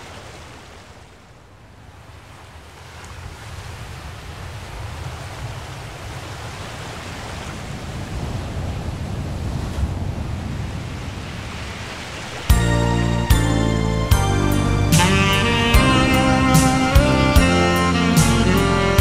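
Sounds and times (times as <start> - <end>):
ocean waves washing in: 0.0 - 18.1
music with loud chords: 12.5 - 19.0.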